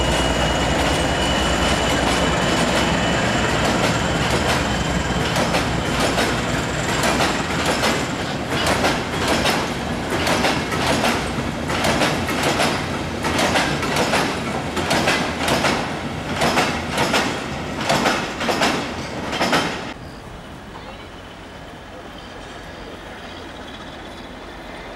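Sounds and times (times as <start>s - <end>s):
train wheels clattering: 0.0s - 20.0s.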